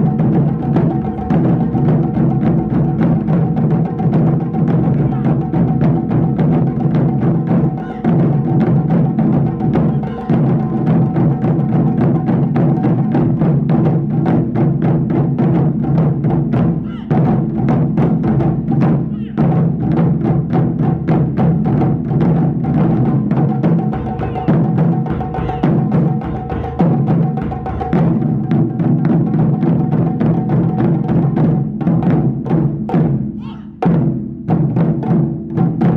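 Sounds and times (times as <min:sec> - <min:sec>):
taiko drums fast rhythm: 0:00.0 - 0:35.9.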